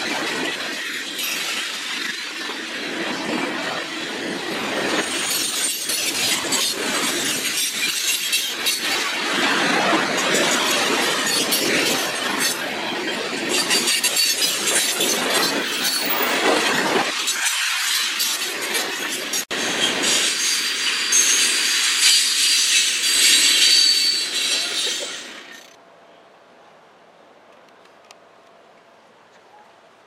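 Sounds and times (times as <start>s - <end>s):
train wheels rushing on rail: 0.0s - 25.8s.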